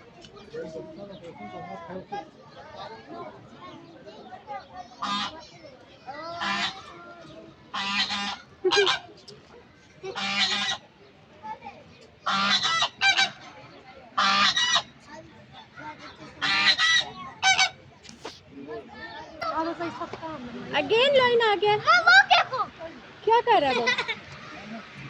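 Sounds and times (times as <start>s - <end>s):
flamingos honking: 12.2s - 13.5s, 14.2s - 14.9s, 16.4s - 17.8s.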